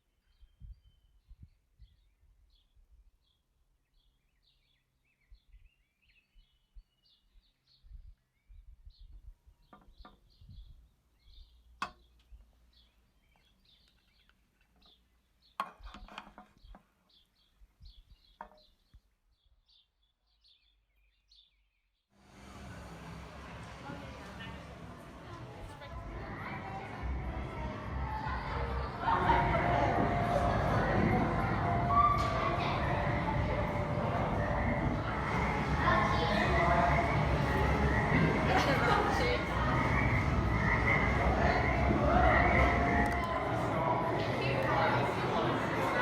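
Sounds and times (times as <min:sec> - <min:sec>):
small birds chirping: 0:00.0 - 0:22.6.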